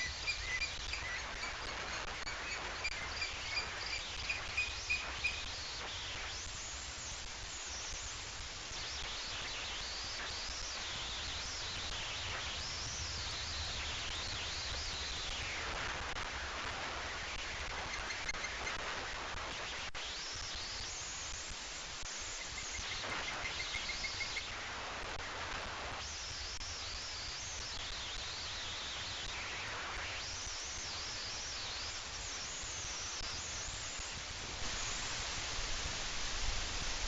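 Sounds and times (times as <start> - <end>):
faint high-pitched bird calls: 0.0 - 5.8, 17.5 - 18.9, 22.2 - 24.6
outdoor background hiss: 0.0 - 37.0.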